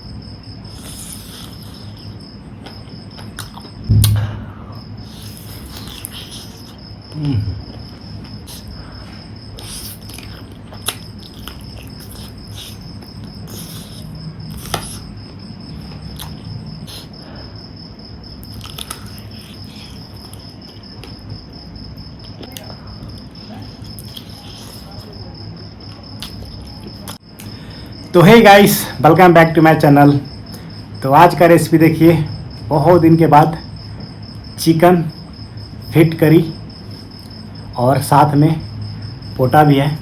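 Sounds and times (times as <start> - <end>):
cricket trilling: 0.0 - 40.0
low hum: 3.8 - 5.0.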